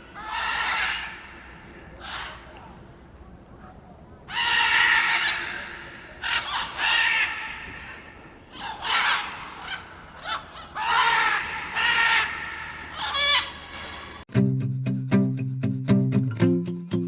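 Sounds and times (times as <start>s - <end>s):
macaws squawking: 0.0s - 14.2s
plucked-string music: 14.3s - 17.0s.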